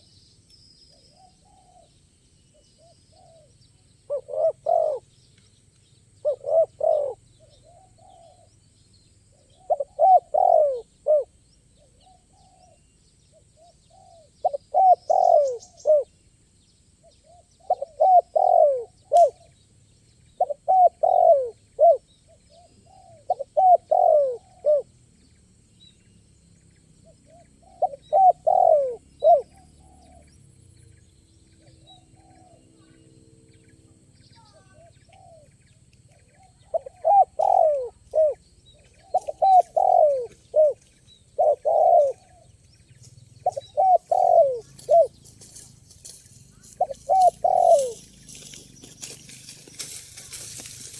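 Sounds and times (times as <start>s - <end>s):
dove cooing: 1.1s - 1.9s, 2.8s - 5.1s, 6.2s - 8.5s, 9.3s - 12.8s, 13.6s - 16.1s, 17.2s - 19.5s, 20.4s - 24.9s, 27.0s - 30.3s, 34.6s - 35.5s, 36.5s - 42.6s, 43.4s - 45.6s, 46.6s - 50.9s.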